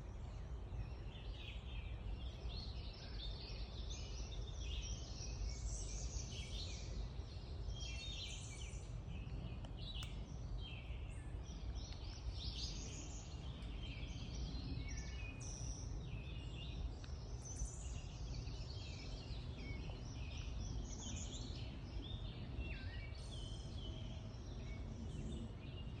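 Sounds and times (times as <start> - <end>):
songbirds chirping and trilling: 0.0 - 26.0
steady low rumble: 0.0 - 26.0.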